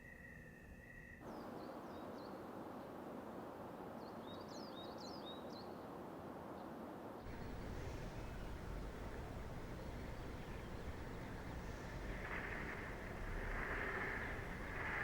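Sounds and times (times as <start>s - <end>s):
soft outdoor hiss: 0.0s - 15.0s
small birds chirping: 7.3s - 15.0s.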